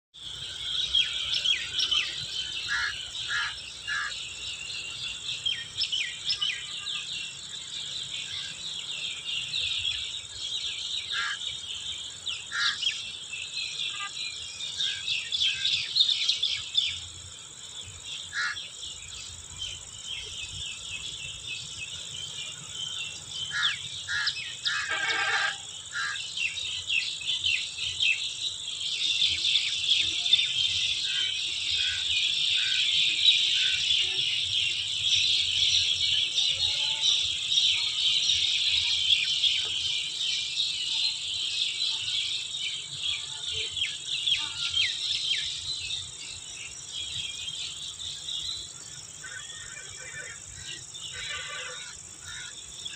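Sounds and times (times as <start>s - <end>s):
birds chirping and calling: 0.2s - 52.9s
insects chirring: 0.2s - 52.9s.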